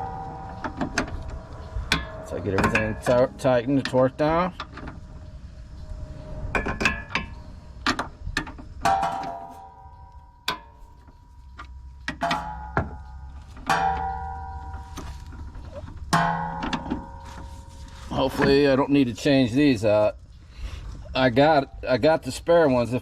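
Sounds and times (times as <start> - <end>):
ringing metallic strikes: 0.0 - 7.7, 8.8 - 18.8.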